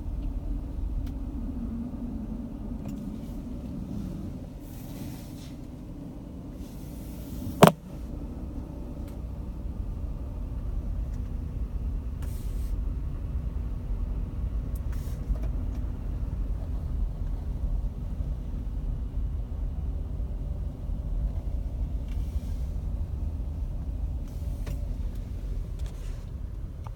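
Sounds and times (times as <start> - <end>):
steady low rumble: 15.5 - 26.9.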